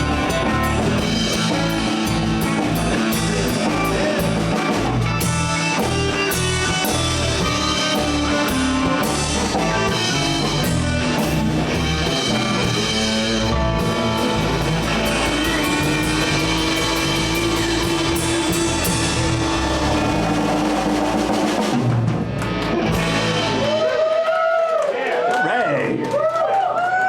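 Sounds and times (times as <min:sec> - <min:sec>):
live blues band playing: 0:00.0 - 0:24.1
long held guitar note: 0:12.0 - 0:21.3
man talking: 0:25.4 - 0:26.0.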